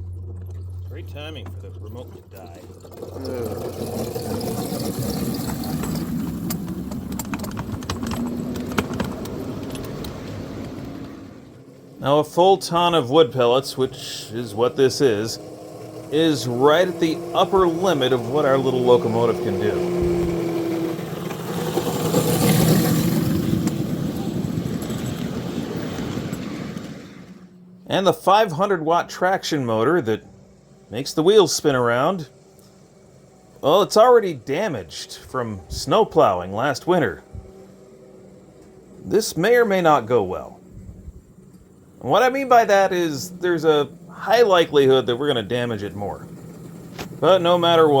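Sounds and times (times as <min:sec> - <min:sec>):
train cars rattling and clicking: 0:00.0 - 0:12.0, 0:17.2 - 0:27.5, 0:41.4 - 0:48.0
low motor hum: 0:00.0 - 0:48.0.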